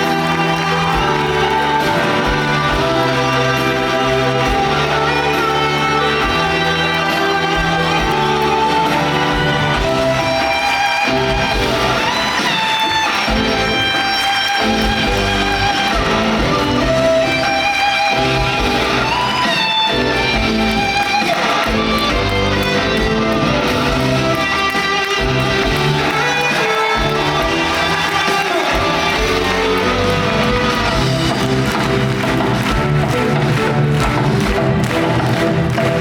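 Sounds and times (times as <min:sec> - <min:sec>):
band playing sustained chords: 0:00.0 - 0:36.0.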